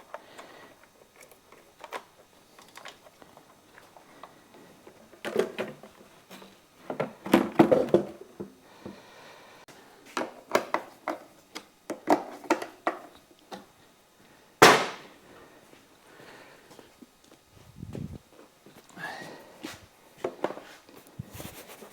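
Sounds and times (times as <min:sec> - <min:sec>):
loud sharp knock: 0:14.6 - 0:15.1.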